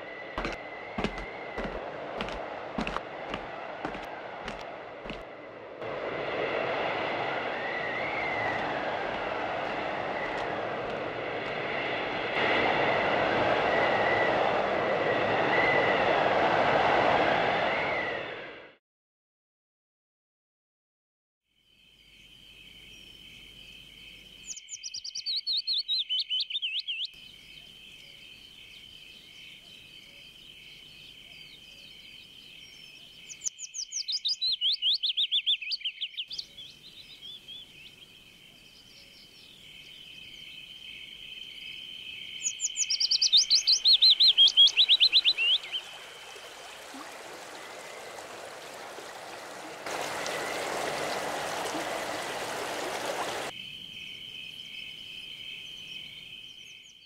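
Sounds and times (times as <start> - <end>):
running stream: 0.4 - 5.3, 44.1 - 53.5
bird singing descending trill: 31.9 - 46.7.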